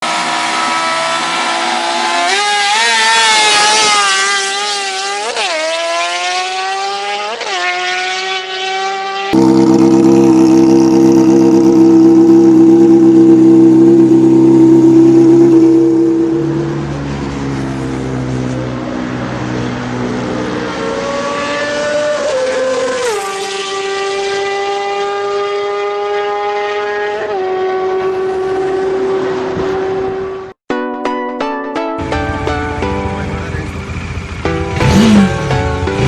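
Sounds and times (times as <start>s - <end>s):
motorcycle engine running: 9.4s - 16.8s, 32.8s - 36.0s.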